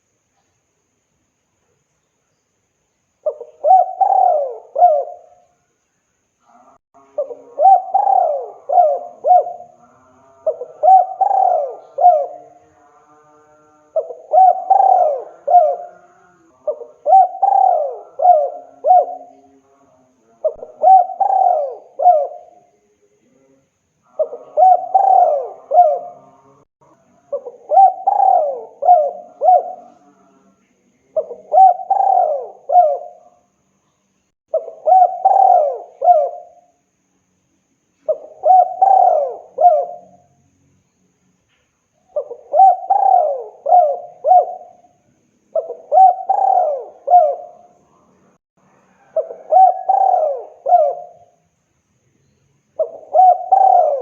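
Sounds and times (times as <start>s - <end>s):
dove cooing: 3.2s - 5.4s, 7.0s - 12.6s, 13.9s - 19.6s, 20.4s - 22.6s, 24.1s - 26.6s, 27.3s - 30.1s, 31.2s - 33.3s, 34.5s - 36.7s, 38.0s - 40.2s, 42.1s - 47.8s, 48.9s - 51.4s, 52.8s - 54.0s.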